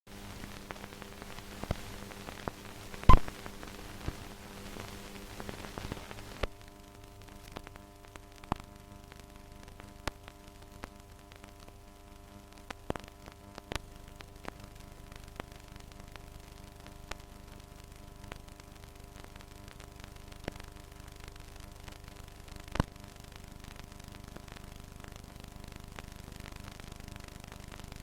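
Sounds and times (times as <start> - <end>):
film soundtrack hiss: 0.1 - 17.6
crackling clicks and pops: 0.1 - 28.0
faint hum: 0.1 - 28.0.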